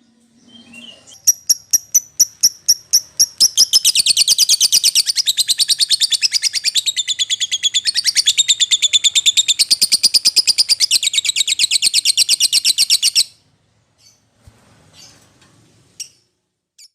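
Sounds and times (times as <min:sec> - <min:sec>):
lovebird chattering trill: 0:01.1 - 0:13.3.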